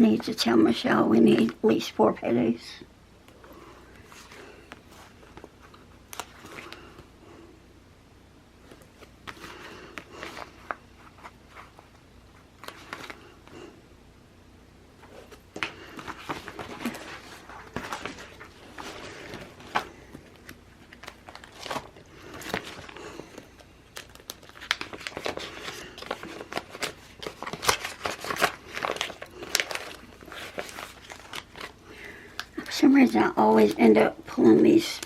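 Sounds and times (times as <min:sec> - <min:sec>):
paper crinkling and rustling: 0:04.0 - 0:07.1, 0:08.6 - 0:13.4, 0:15.0 - 0:35.0.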